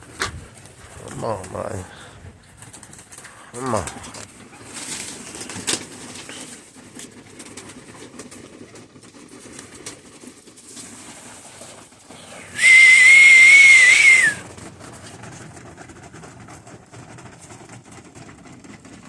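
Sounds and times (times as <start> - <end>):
whistle blown high tone: 12.6 - 14.4.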